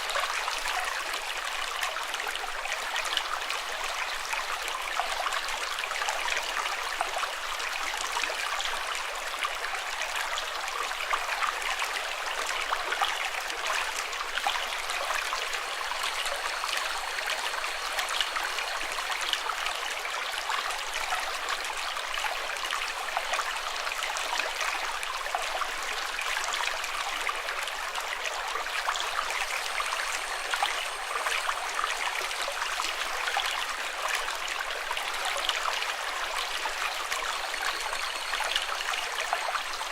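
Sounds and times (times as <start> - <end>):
water trickling: 11.0 - 39.9.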